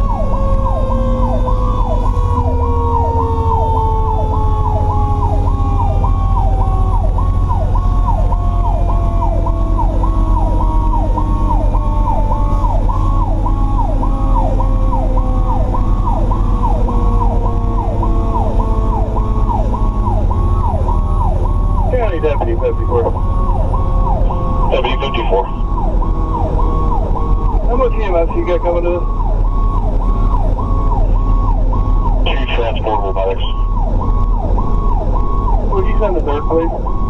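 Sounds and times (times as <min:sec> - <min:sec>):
electronic siren yelping: 0:00.0 - 0:37.0
heavy engine and road rumble: 0:00.0 - 0:37.0
mechanical siren wailing: 0:00.0 - 0:37.0.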